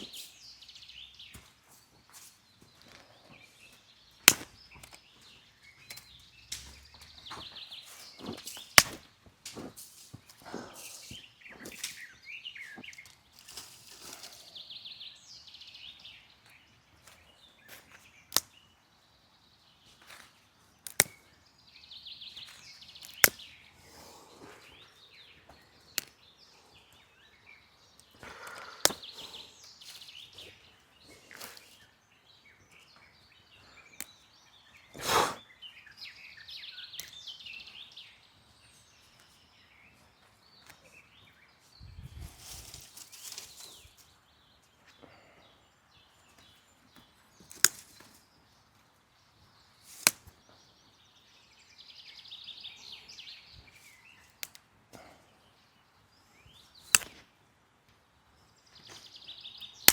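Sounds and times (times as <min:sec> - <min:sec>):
rustle or scrape: 0:00.0 - 0:00.5, 0:01.7 - 0:02.5, 0:09.5 - 0:14.9, 0:41.8 - 0:44.2, 0:49.8 - 0:50.2
birds singing trilled phrases: 0:09.6 - 0:57.2
sharp clicks: 0:56.9 - 0:57.2.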